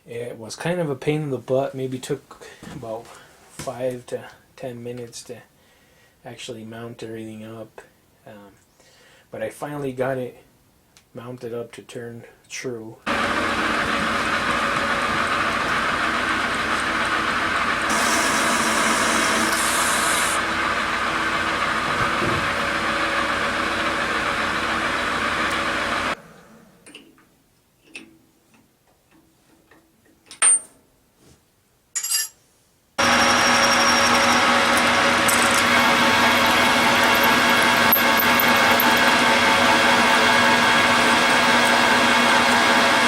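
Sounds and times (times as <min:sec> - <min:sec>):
metal lathe humming: 0:13.1 - 0:26.2, 0:33.0 - 0:43.0.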